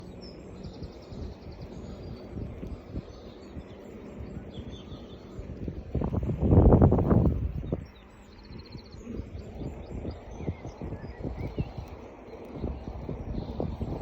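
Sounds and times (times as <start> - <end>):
faint birdsong: 0.0 - 14.0.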